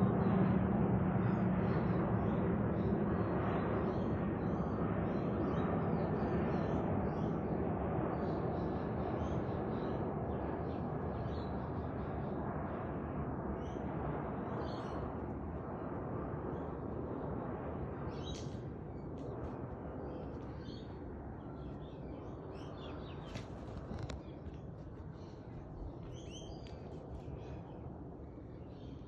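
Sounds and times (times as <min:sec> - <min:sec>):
jet engines rumbling overhead: 0:00.0 - 0:29.0
birds chirping: 0:21.6 - 0:27.8.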